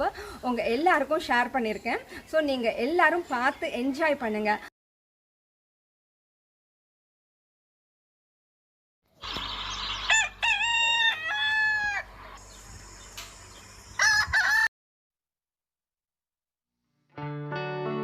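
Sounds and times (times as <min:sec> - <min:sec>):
rooster crowing: 0:09.8 - 0:12.1, 0:13.9 - 0:14.7.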